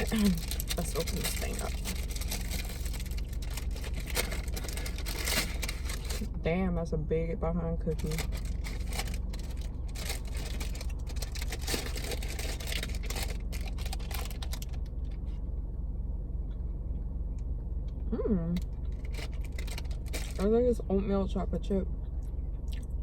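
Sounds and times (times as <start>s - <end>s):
cookie crunching: 0.0s - 6.3s, 8.0s - 14.8s
low hum: 0.0s - 23.0s.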